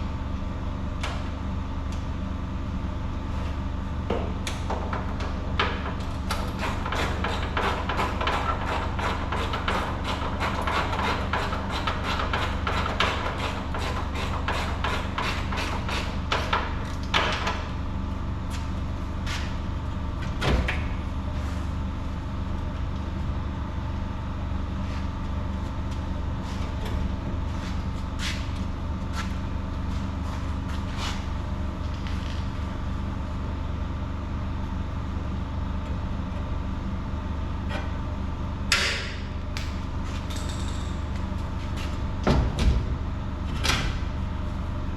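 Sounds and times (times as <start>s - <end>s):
low machine hum: 0.0s - 44.9s.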